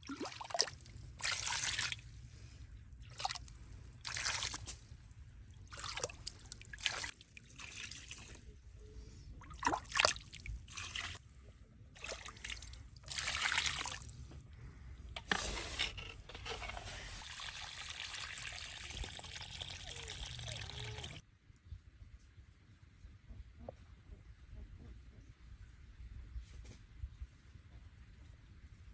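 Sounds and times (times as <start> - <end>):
water trickling and splashing: 0.0 - 8.5, 9.4 - 11.2, 12.0 - 14.3, 16.6 - 21.2.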